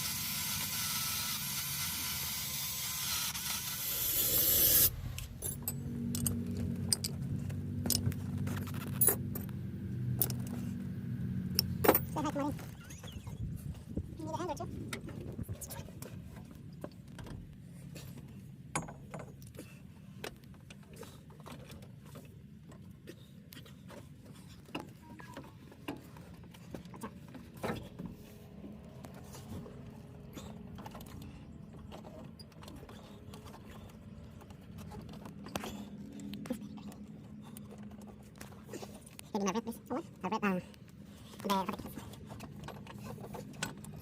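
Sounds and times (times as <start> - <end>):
metallic clicks of tools: 4.8 - 7.2, 10.2 - 10.6.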